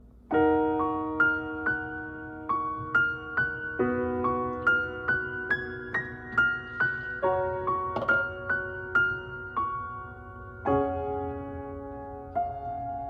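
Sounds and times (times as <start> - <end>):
piano playing notes and chords: 0.2 - 13.0.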